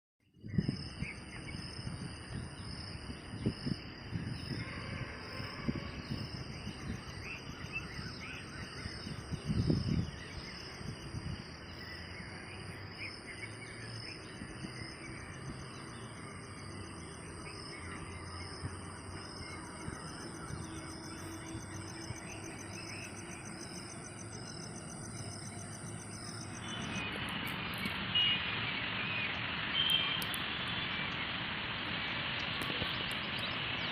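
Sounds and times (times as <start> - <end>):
insects chirring: 0.4 - 33.9
steady hiss: 18.3 - 33.9.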